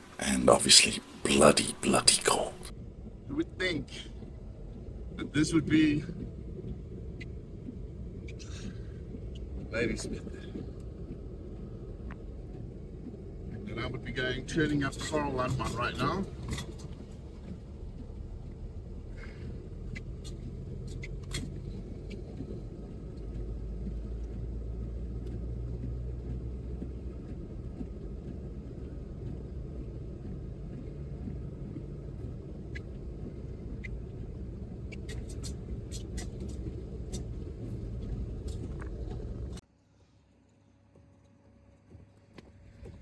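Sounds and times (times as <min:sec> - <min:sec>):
car engine and road noise: 0:14.4 - 0:39.6.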